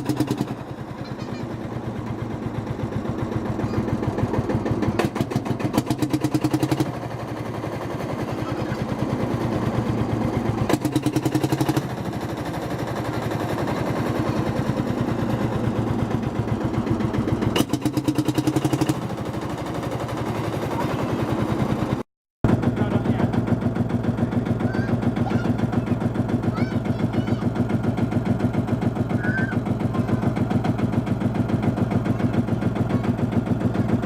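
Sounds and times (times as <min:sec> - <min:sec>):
diesel engine exhaust beats: 0:00.0 - 0:34.0.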